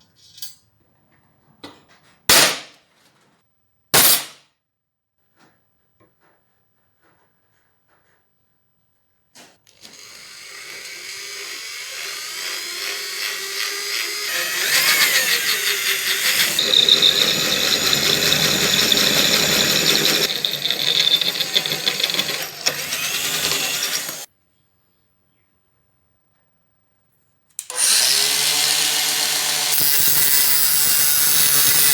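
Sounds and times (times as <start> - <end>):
power tool running: 9.7 - 24.3, 27.6 - 31.9.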